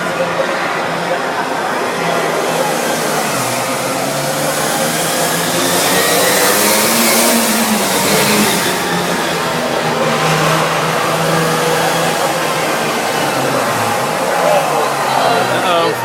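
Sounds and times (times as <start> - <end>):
dense rushing noise: 0.0 - 16.0
monster truck engine revving: 0.0 - 16.0.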